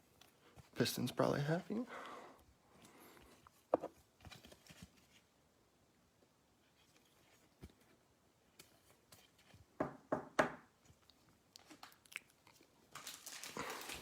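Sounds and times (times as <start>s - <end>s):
foil pack crinkly rustles: 12.6s - 14.0s.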